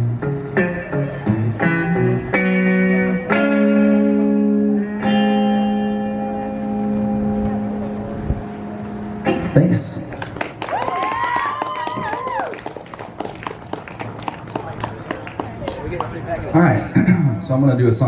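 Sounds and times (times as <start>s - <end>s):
guitar plucked notes and chords: 0.0s - 10.3s.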